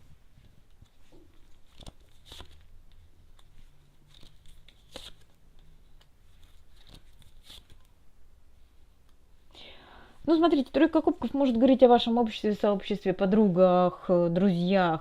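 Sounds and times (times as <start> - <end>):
cards snapping and rustling: 0.7 - 7.9.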